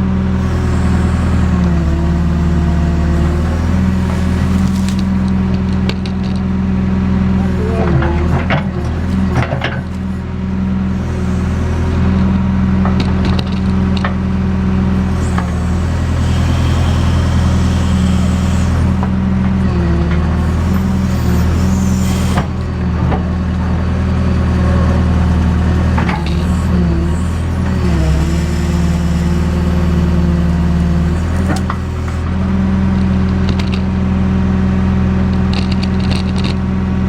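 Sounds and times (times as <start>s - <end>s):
diesel engine running: 0.0s - 37.0s
sharp clanks and knocks: 7.8s - 10.0s.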